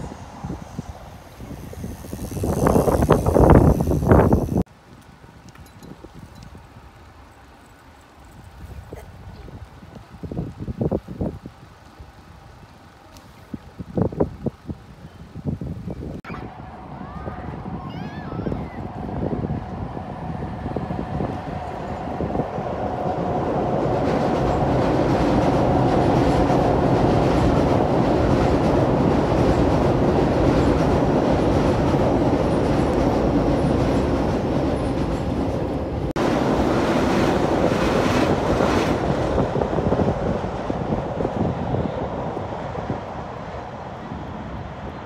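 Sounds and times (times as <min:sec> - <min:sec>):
train wheels rumbling on rails: 0:16.6 - 0:45.0
clickety-clack over rail joints: 0:23.0 - 0:36.1.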